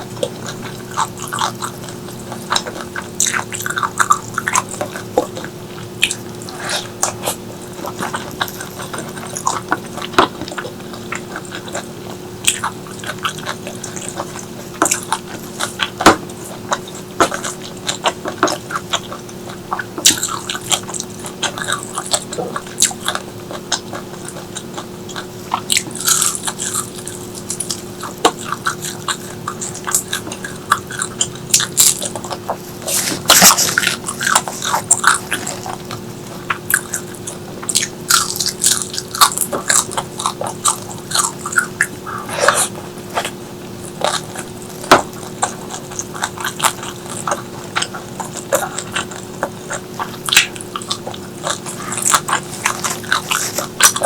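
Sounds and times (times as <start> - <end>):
person chewing food: 0.0 - 54.0
steady low hum: 0.0 - 54.0
wet mouth clicks: 25.1 - 54.0.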